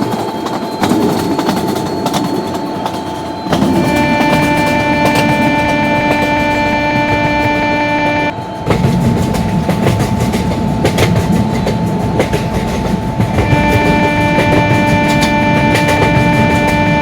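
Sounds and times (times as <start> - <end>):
wheels clicking over rail joints: 0.0 - 7.6, 8.3 - 17.0
train wheels rumbling: 0.0 - 17.0
music track: 3.4 - 8.7.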